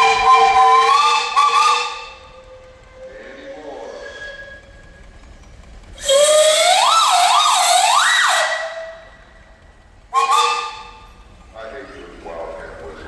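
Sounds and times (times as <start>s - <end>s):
steam whistle blast: 0.0s - 2.4s, 6.0s - 9.1s, 10.2s - 11.0s.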